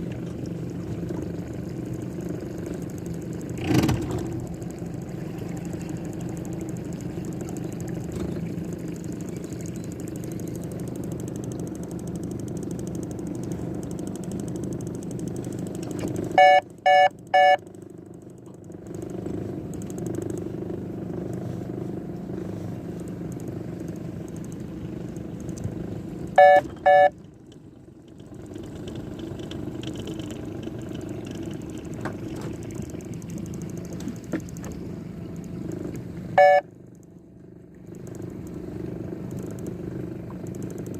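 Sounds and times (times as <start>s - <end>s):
boat motor running: 0.0s - 40.9s
short electronic beeps: 16.4s - 17.6s, 26.4s - 27.2s, 36.4s - 36.7s.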